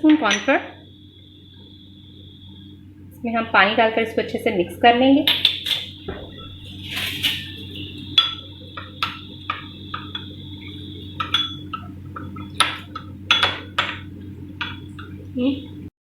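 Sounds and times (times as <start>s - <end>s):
low hum: 0.0s - 15.9s
spoon clinking glass bowl: 6.4s - 10.4s, 11.1s - 15.2s.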